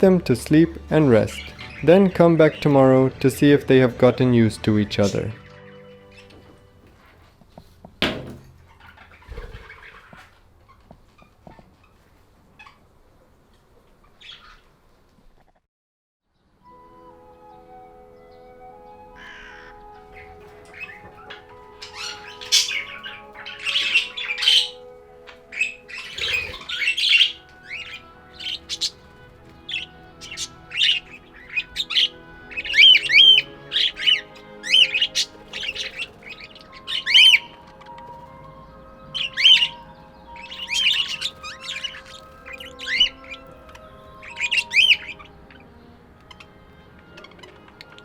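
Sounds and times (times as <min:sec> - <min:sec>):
budgerigars chirping and squawking: 0:00.0 - 0:07.3, 0:08.0 - 0:12.9, 0:14.0 - 0:14.7, 0:19.1 - 0:48.0
soft background music: 0:00.0 - 0:12.8, 0:16.3 - 0:48.0.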